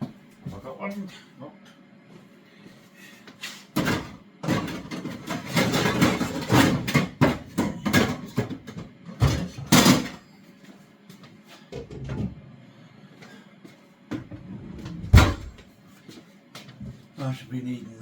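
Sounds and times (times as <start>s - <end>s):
cookware and utensils clattering: 3.8s - 10.2s.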